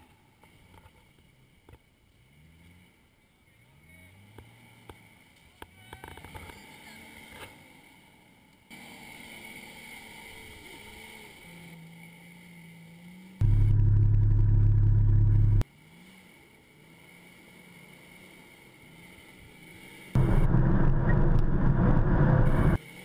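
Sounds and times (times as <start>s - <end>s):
off-road engines in mud: 0.0s - 23.0s
loud low engine drone: 13.4s - 15.6s, 20.2s - 22.8s.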